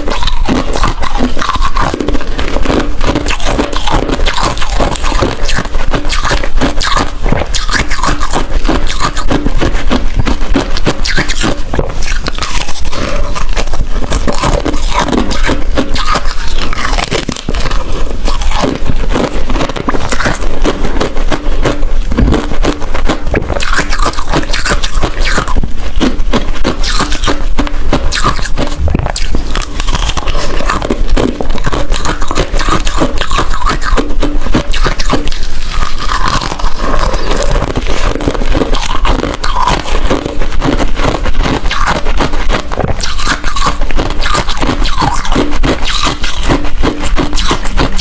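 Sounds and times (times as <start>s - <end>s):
ice being chewed: 0.0s - 48.0s.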